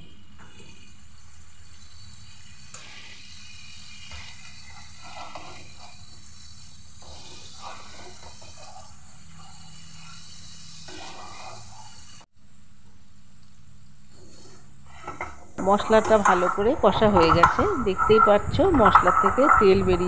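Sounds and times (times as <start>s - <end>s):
paste sizzling in oil: 0.8s - 12.3s
spatula stirring in pan: 1.3s - 12.3s, 14.1s - 20.0s.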